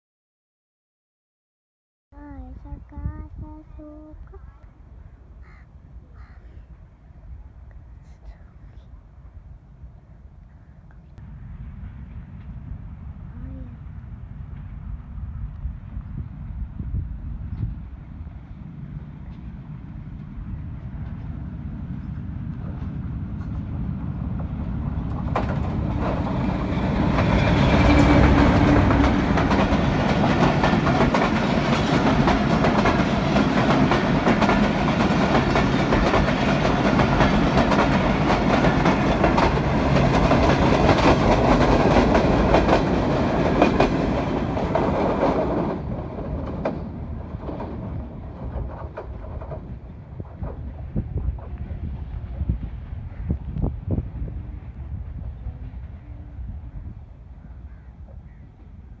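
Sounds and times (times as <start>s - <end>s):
train wheels clattering on rails: 22.5s - 52.6s.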